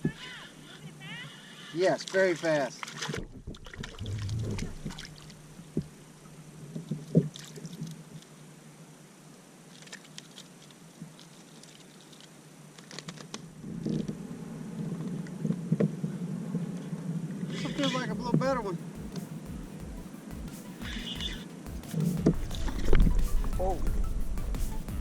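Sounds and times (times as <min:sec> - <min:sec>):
light water sounds: 0:01.6 - 0:19.3.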